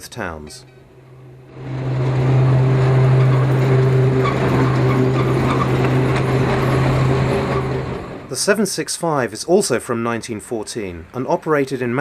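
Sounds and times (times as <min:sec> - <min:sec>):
electric tram running: 0:00.5 - 0:08.6.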